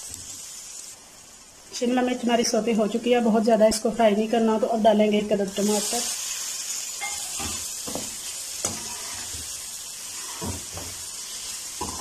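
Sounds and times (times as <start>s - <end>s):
vegetables sizzling in hot oil: 0.0s - 12.0s
metal spatula scraping and stirring: 7.0s - 12.0s.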